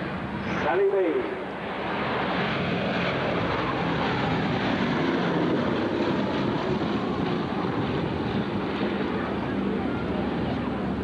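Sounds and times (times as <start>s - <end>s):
propeller plane flying past: 0.0s - 11.0s.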